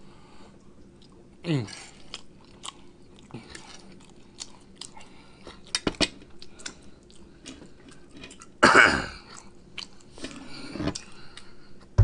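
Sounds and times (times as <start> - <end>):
person chewing with lip smacks: 1.9 - 8.5, 9.3 - 11.5.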